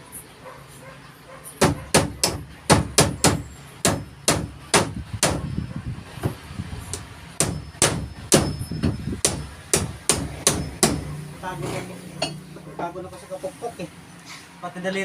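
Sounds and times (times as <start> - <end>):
hammer driving nails: 1.6 - 5.5, 6.9 - 11.1.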